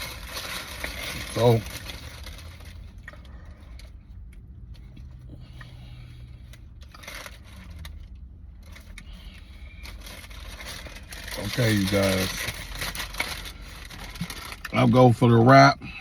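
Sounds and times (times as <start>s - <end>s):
low steady rumble: 0.0s - 16.0s
food packaging rustling: 9.8s - 14.9s.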